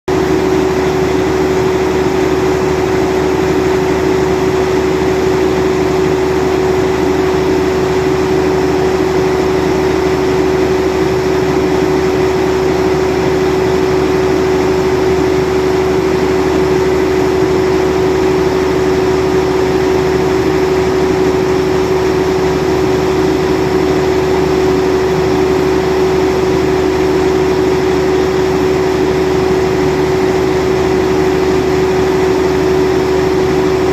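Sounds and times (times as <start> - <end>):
generator engine running: 0.1 - 33.9.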